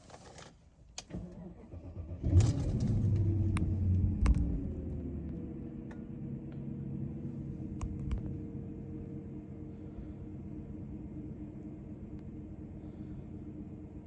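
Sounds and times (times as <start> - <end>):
car engine revving and idling: 1.5 - 14.0.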